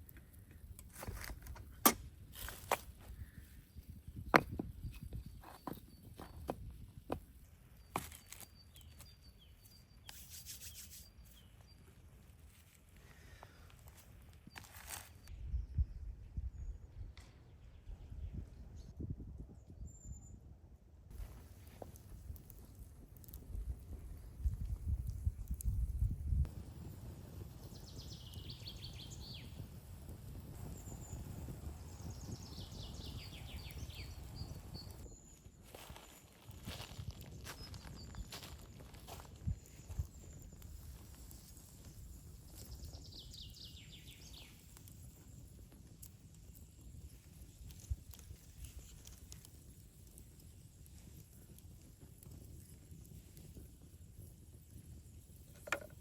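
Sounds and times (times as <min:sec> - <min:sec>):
songbird singing: 0:27.5 - 0:29.6, 0:30.6 - 0:36.1, 0:41.8 - 0:44.8.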